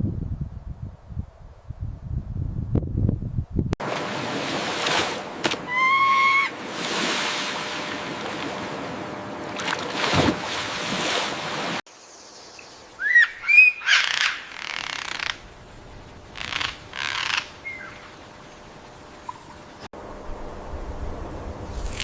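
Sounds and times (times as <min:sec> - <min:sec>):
bird chirps and calls: 0:12.0 - 0:15.4.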